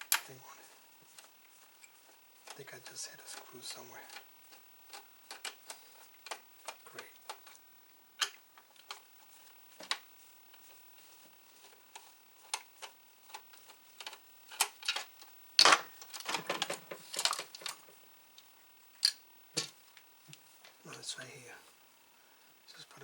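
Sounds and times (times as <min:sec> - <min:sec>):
clatter and rustle: 0:08.7 - 0:18.0.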